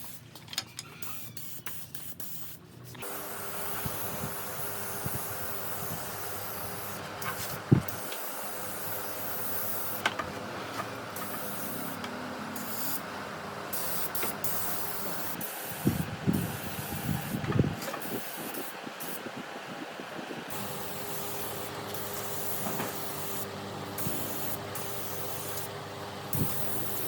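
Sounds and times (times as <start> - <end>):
compressed air hissing: 1.1 - 10.0, 11.1 - 13.0, 13.7 - 19.3, 20.5 - 25.7, 26.3 - 27.0.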